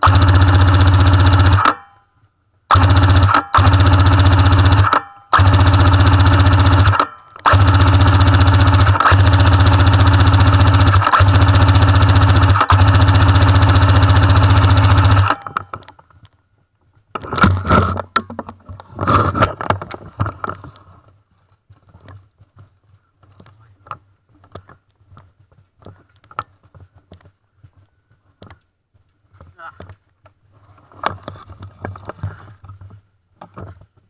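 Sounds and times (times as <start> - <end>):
airsoft machine gun firing: 0.0 - 1.9, 2.7 - 15.7
scattered knocks and clatter: 17.1 - 21.1.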